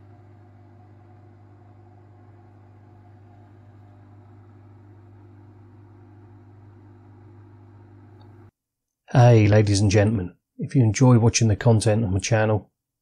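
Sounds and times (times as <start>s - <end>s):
washing machine spin cycle hum: 0.0s - 8.6s.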